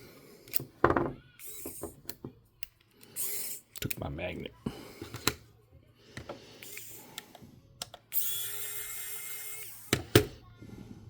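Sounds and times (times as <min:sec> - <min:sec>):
small electric motor whining: 0:06.6 - 0:07.2, 0:08.1 - 0:10.2.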